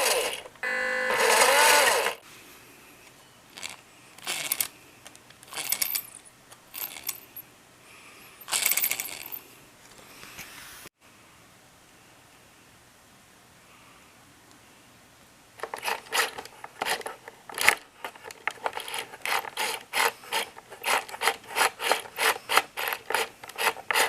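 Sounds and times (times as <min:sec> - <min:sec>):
toy truck drivetrain grinding: 0:00.0 - 0:02.2, 0:03.6 - 0:04.7, 0:05.4 - 0:06.0, 0:08.5 - 0:09.3, 0:15.6 - 0:24.0.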